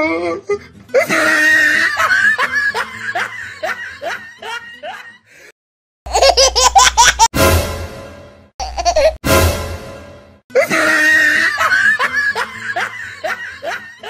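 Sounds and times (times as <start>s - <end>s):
laughter sound effect: 0.9s - 5.3s, 6.1s - 7.3s, 8.6s - 9.2s, 10.5s - 14.0s
loud sound clip: 7.3s - 8.5s, 9.2s - 10.4s.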